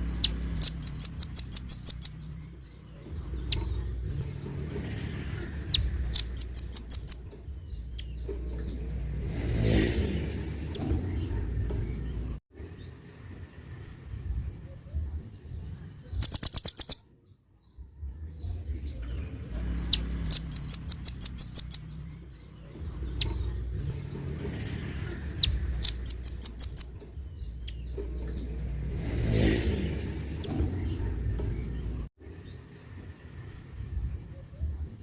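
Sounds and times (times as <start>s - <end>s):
bird chattering call: 0.2s - 2.2s, 6.1s - 7.2s, 16.2s - 17.0s, 20.3s - 21.9s.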